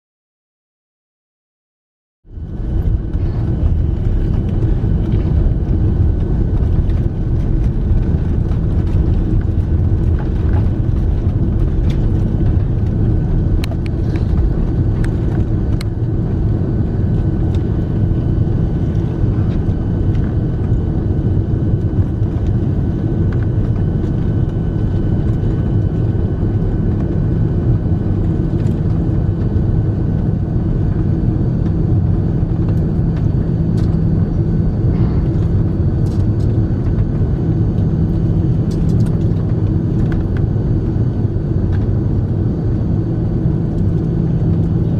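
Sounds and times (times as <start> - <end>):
airplane cabin engine rumble: 2.3 - 44.9
faint steady whine: 2.3 - 44.9
small clicks and rattles: 38.2 - 40.4.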